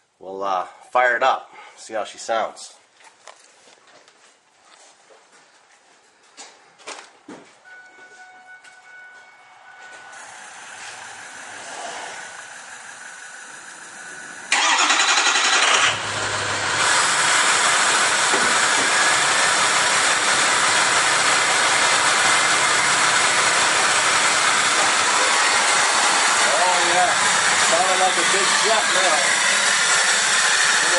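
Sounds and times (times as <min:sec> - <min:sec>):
diesel engine starting and idling: 0:10.1 - 0:30.9.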